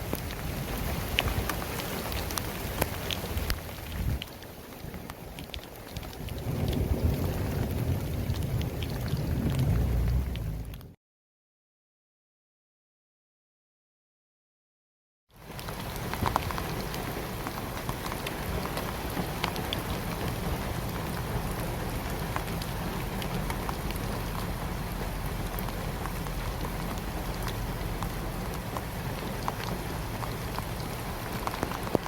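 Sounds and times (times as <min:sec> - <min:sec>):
raindrops pattering: 0:00.0 - 0:11.0, 0:15.3 - 0:32.0
heavy rain hissing: 0:15.4 - 0:32.0.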